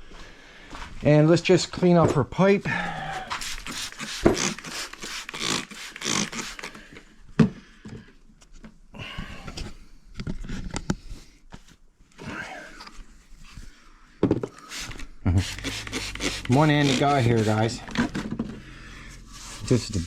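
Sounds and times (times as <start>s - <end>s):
steel wool scrubbing metal pipe: 14.7s - 17.9s, 19.1s - 20.0s.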